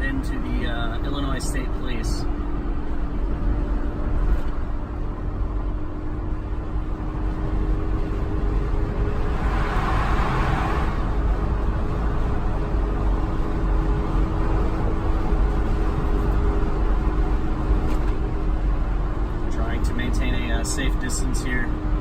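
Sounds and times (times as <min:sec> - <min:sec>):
car driving at highway speed: 0:00.0 - 0:22.0
rushing swell: 0:09.0 - 0:11.3.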